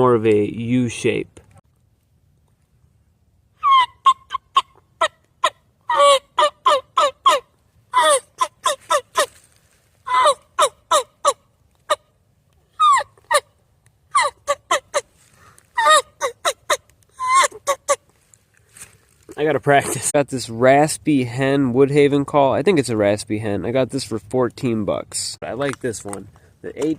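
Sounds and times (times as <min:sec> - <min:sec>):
turkey call hen yelps: 0:03.6 - 0:09.3, 0:10.0 - 0:12.1, 0:12.7 - 0:15.1, 0:15.8 - 0:18.1.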